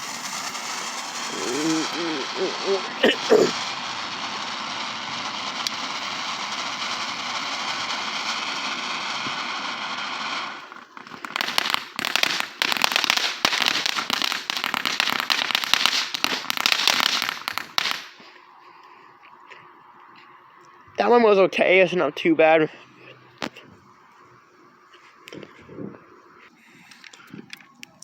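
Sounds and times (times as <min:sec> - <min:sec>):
firework spraying hiss: 0:00.0 - 0:18.2
firework crackling: 0:00.0 - 0:18.5.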